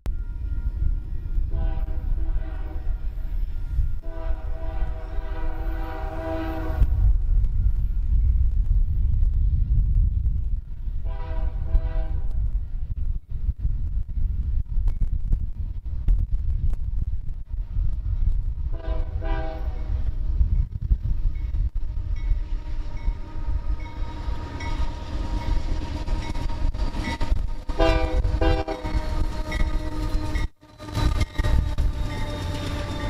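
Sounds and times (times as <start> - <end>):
train air horn blasts: 0.1 - 7.2, 11.0 - 12.5, 18.7 - 20.1, 22.1 - 33.0
diesel locomotive rumbling past: 0.1 - 14.8, 17.0 - 33.0.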